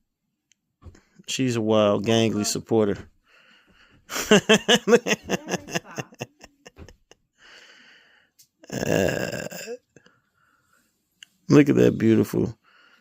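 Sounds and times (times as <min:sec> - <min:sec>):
person laughing: 0:04.1 - 0:07.2
breathy exhale: 0:07.4 - 0:08.4.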